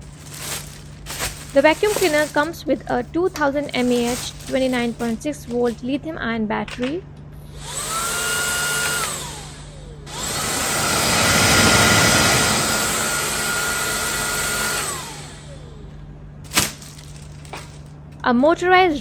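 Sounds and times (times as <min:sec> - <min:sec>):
vacuum cleaner motor whine: 0:07.4 - 0:16.0.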